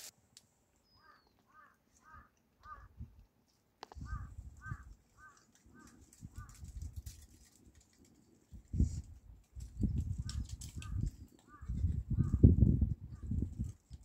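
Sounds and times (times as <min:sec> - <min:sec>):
bird calling: 0:00.8 - 0:03.0, 0:03.8 - 0:06.6, 0:10.8 - 0:12.4.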